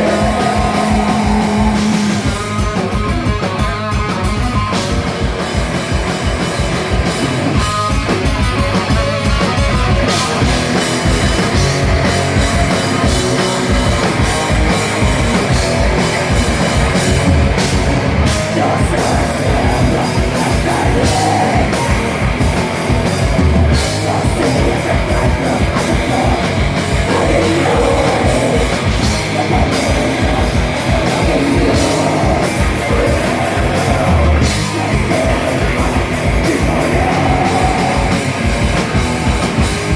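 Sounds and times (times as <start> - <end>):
person singing: 0.0 - 2.5, 18.3 - 22.8, 23.7 - 38.5
rock band playing: 0.0 - 39.9.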